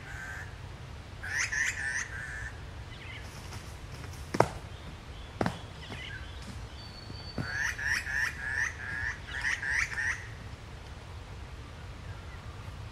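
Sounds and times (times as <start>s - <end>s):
woodland bird calling: 1.2s - 3.3s, 4.6s - 10.4s
kangaroo thumping the ground: 3.5s - 4.7s.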